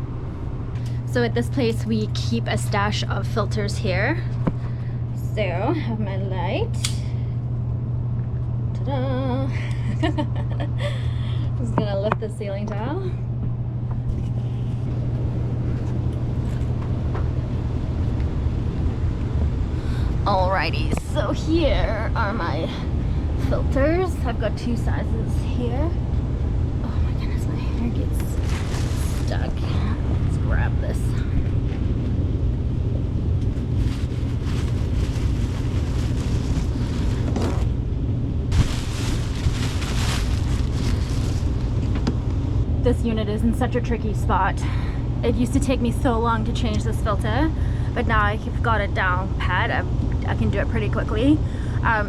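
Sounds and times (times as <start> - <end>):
hvac unit rumbling: 0.0 - 52.0
ventilation machinery hum: 0.0 - 52.0
filters rustling: 28.0 - 31.1, 33.3 - 42.5.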